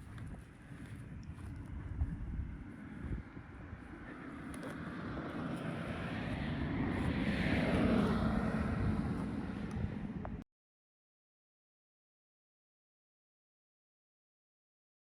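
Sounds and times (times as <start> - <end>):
engine passing by: 0.5 - 10.4.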